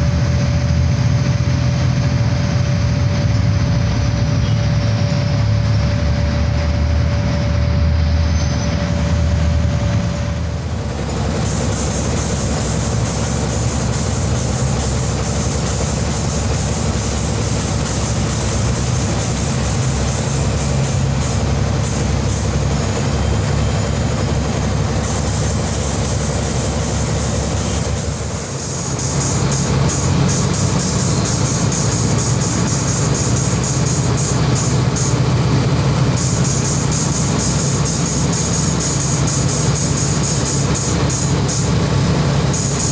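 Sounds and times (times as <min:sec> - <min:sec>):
heavy diesel engines running: 0:00.0 - 0:42.9.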